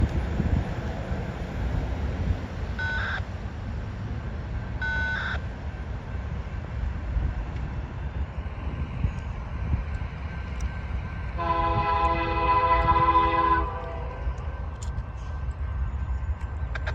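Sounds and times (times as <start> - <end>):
freight train rumbling: 0.0 - 16.9
locomotive air horn chord: 11.4 - 14.3.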